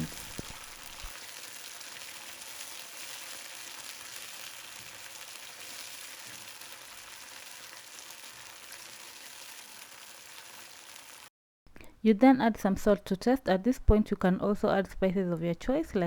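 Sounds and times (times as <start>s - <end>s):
sauce sizzling in a pan: 0.0s - 11.3s.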